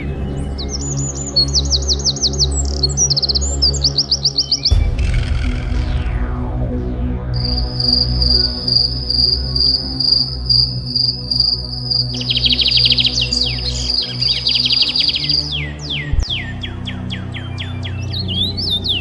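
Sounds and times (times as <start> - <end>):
rapid chirping and bird whistles: 0.6 - 4.9, 7.4 - 19.0
low sustained drone: 4.6 - 19.0
cricket-like trilling: 7.4 - 15.6.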